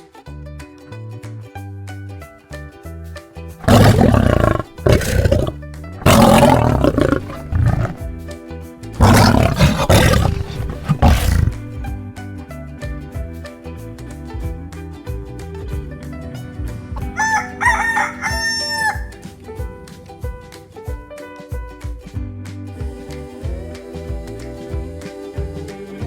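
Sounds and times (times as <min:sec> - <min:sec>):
lion roaring: 0:03.6 - 0:08.0, 0:09.0 - 0:11.6.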